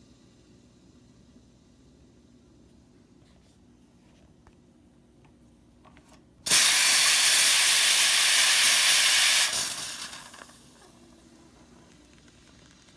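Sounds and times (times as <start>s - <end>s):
steam hissing from espresso machine: 6.5s - 12.9s.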